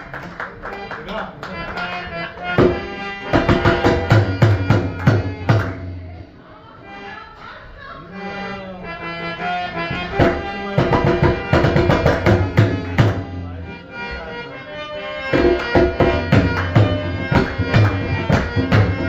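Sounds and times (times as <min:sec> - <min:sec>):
reedy harmonium-like melody: 0:00.0 - 0:19.0
tabla playing: 0:01.8 - 0:06.2, 0:09.8 - 0:13.8, 0:15.2 - 0:19.0.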